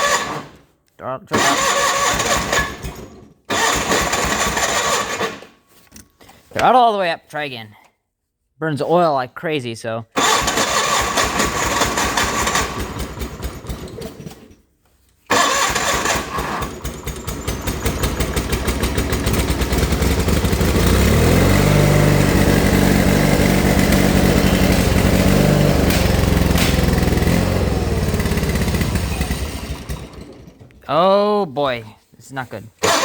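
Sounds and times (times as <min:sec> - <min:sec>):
starter motor cranking engine: 0:00.0 - 0:00.6, 0:01.3 - 0:05.6, 0:10.2 - 0:14.5, 0:15.3 - 0:30.8, 0:32.8 - 0:33.0
tractor engine running: 0:01.4 - 0:05.4, 0:10.2 - 0:14.4, 0:15.3 - 0:31.2.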